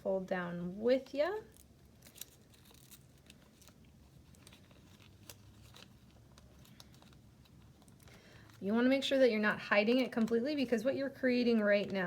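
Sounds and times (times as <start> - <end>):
low room hum: 0.0 - 12.0
paper crinkling and clicking: 1.5 - 8.6.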